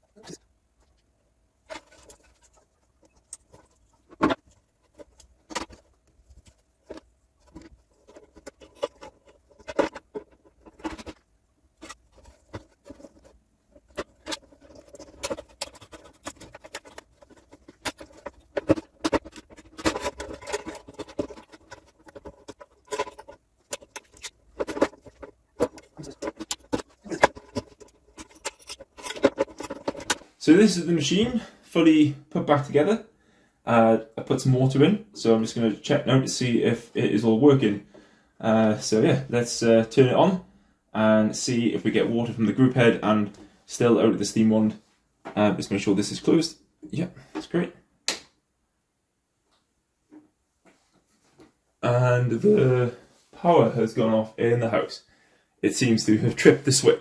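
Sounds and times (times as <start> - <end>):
parts clicking and clattering: 0.7 - 30.4.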